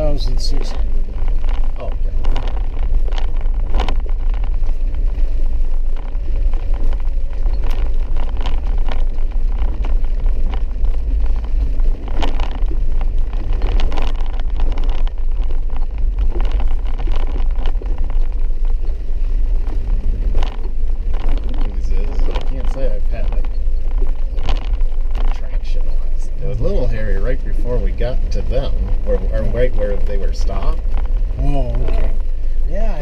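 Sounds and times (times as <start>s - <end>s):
car knocks and jolts over bumps: 0.0s - 33.0s
engine and tyre rumble: 0.0s - 33.0s.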